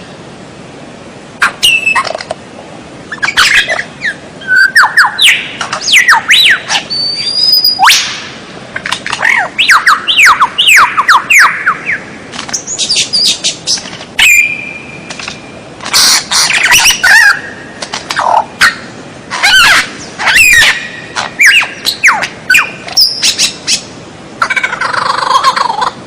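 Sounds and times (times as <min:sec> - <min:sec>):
bird singing whistled song: 0:01.4 - 0:02.2, 0:03.1 - 0:08.2, 0:09.2 - 0:15.1, 0:19.4 - 0:23.8.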